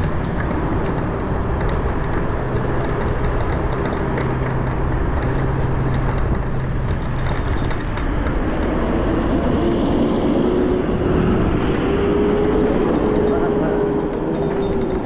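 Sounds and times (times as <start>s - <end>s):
low hum: 0.0s - 15.0s
wind and road noise: 0.0s - 15.0s
higher hum rising in pitch: 7.9s - 15.0s.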